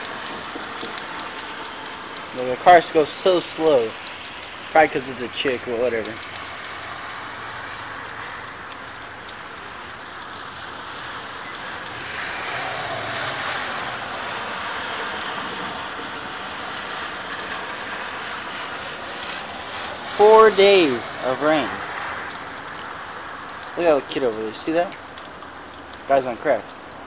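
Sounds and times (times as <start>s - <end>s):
car tyres hissing through water: 0.0s - 27.0s
heavy rain: 0.0s - 27.0s.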